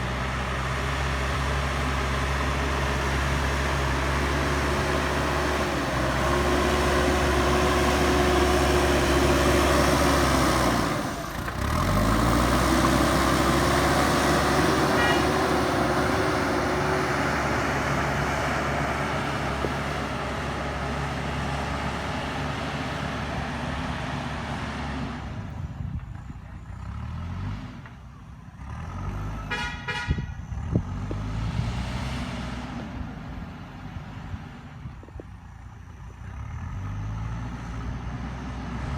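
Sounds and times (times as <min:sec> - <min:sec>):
diesel engine under load: 0:00.0 - 0:38.9
short horn toot: 0:14.8 - 0:15.6, 0:29.4 - 0:30.4.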